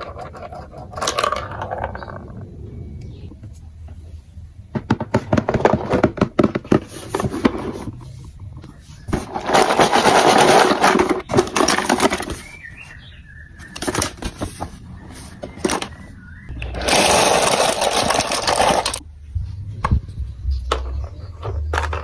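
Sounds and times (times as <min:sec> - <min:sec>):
marbles rattling along plastic run: 0:16.8 - 0:19.0.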